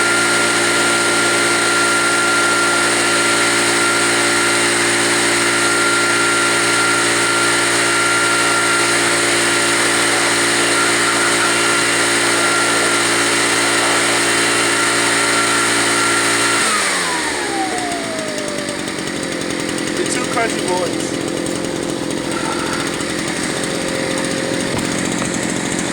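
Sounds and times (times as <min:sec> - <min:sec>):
leaf blower engine running: 0:00.0 - 0:25.9.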